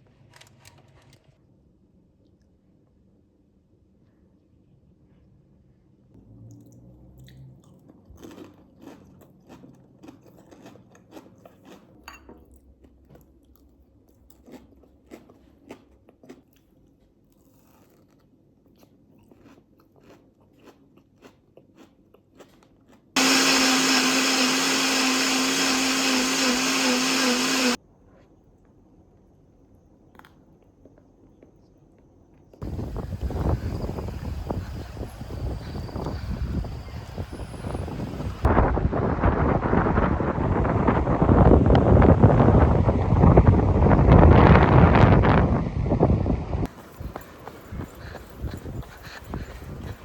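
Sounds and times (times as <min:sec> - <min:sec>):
small electric motor humming: 0:23.2 - 0:27.8, 0:32.6 - 0:38.5.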